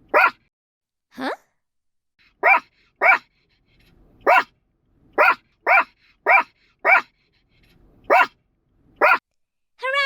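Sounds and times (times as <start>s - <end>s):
puppy barking: 0.0s - 0.5s, 2.4s - 3.3s, 4.2s - 4.5s, 5.2s - 7.1s, 8.1s - 8.4s, 9.0s - 9.2s.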